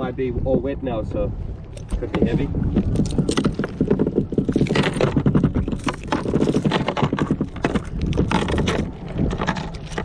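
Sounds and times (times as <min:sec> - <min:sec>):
anchor gear knocking against hull: 0:03.2 - 0:10.0.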